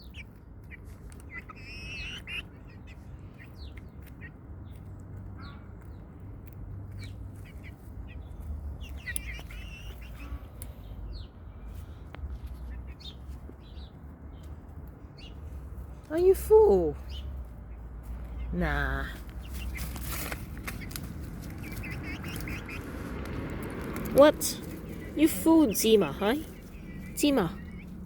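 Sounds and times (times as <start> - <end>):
young chickens chirping: 0.0 - 28.0
low steady rumble: 20.4 - 28.0.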